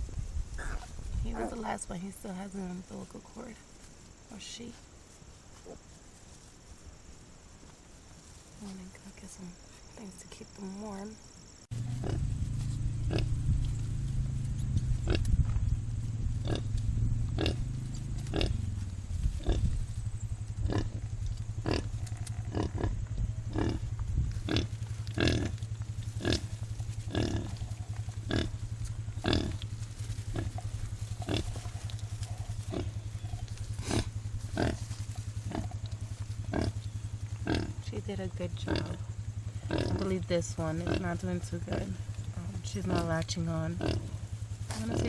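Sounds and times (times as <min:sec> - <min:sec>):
steady low hum: 0:00.0 - 0:45.0
pig grunting: 0:00.6 - 0:01.7, 0:11.7 - 0:15.3, 0:16.4 - 0:16.7, 0:17.3 - 0:18.7, 0:21.6 - 0:23.9, 0:24.5 - 0:25.6, 0:26.2 - 0:26.5, 0:27.1 - 0:28.6, 0:29.2 - 0:29.6, 0:30.3 - 0:34.9, 0:36.4 - 0:36.8, 0:37.4 - 0:37.8, 0:38.6 - 0:40.2.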